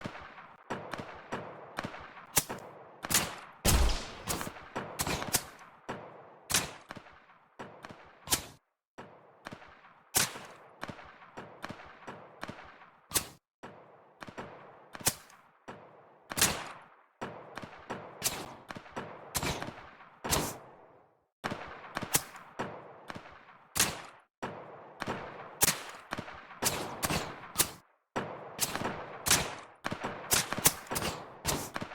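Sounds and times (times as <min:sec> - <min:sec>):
supersonic bullet cracks: 0:03.7 - 0:05.5.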